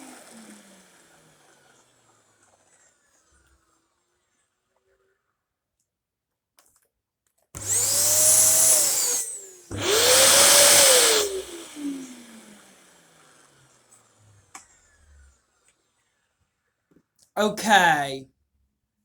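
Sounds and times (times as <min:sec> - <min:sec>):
vacuum cleaner motor whine: 0:00.0 - 0:03.4, 0:07.6 - 0:15.4.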